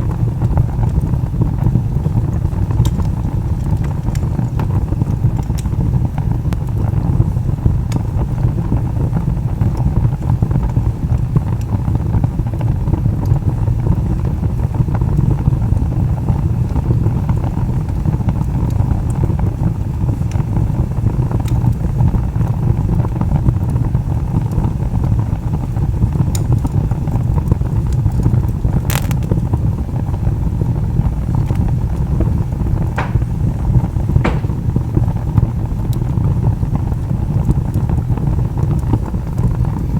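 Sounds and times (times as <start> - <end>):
wood fire roaring: 0.0 - 39.9
fire crackling and popping: 28.6 - 35.9.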